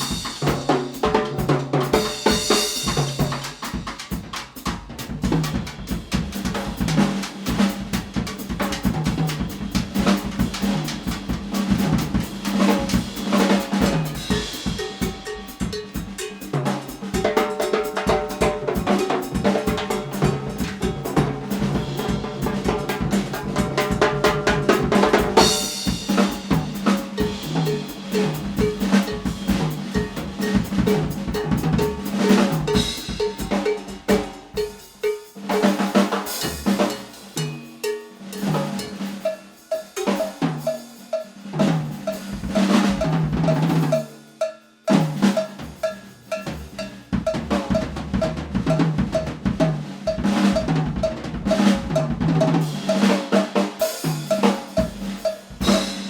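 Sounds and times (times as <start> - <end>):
drum kit groove: 0.0 - 56.0.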